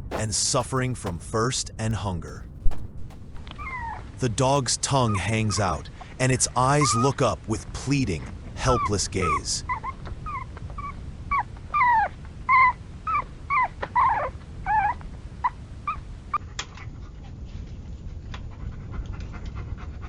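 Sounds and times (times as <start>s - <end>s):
dog whimpering and whining: 9.7s - 15.0s.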